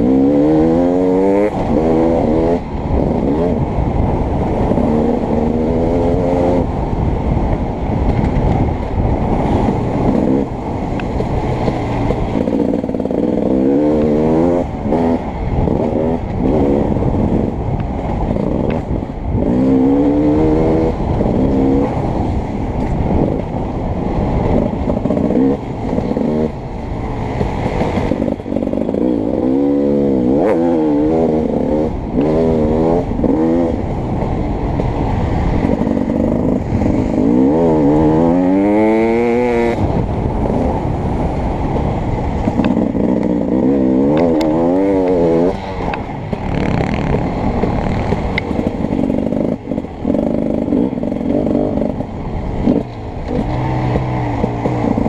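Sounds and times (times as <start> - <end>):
dirt bike engine revving: 0.0 - 3.6, 11.4 - 17.5, 19.4 - 22.0, 27.7 - 33.8, 35.5 - 40.8, 42.4 - 55.0.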